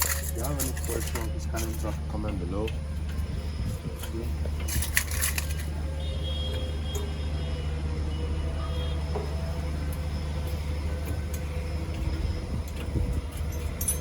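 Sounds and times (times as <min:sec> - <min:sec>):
metal parts rattling: 0:00.0 - 0:02.0, 0:04.6 - 0:05.8, 0:13.2 - 0:14.0
generator engine drone: 0:00.0 - 0:14.0.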